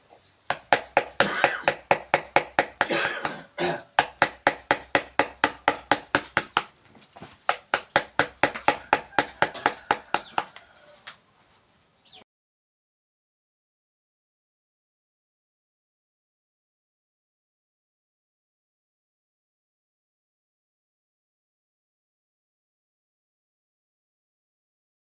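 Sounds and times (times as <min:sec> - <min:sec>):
mallet tapping chisel into wood: 0:00.5 - 0:03.0, 0:04.0 - 0:06.7, 0:07.5 - 0:10.5.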